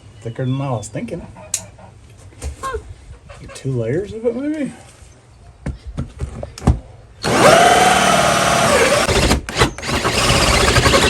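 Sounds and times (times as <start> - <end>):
cordless drill boring into siding: 7.2 - 11.0.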